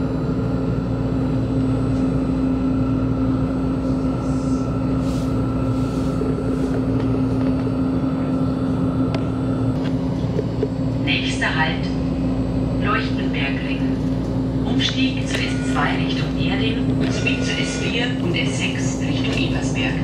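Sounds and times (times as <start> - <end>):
train wheels rumbling on track: 12.8 - 20.0.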